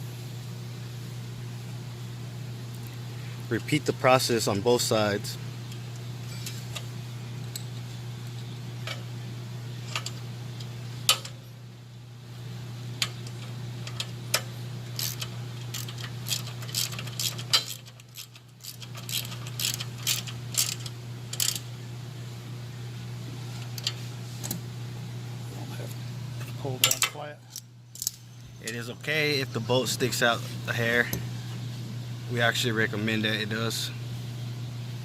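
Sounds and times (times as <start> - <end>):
metal tools clinking: 15.0 - 21.6.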